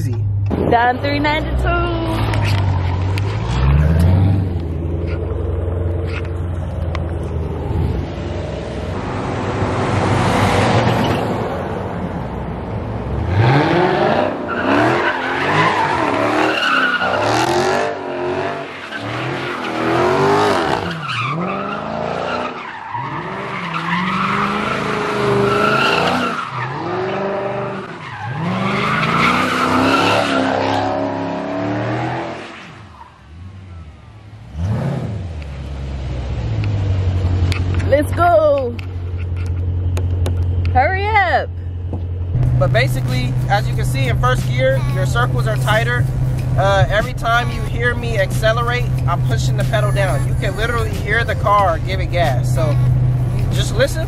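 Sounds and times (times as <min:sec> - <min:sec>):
car engine revving: 0:00.0 - 0:54.0
tyres squealing: 0:14.5 - 0:31.2.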